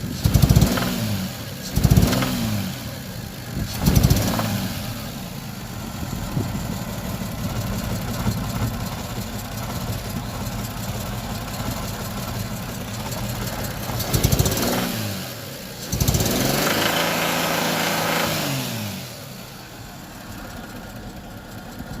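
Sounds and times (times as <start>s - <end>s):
engine revving: 0.0s - 5.5s, 13.5s - 19.5s
car engine idling with knock: 1.5s - 16.9s, 19.2s - 22.0s.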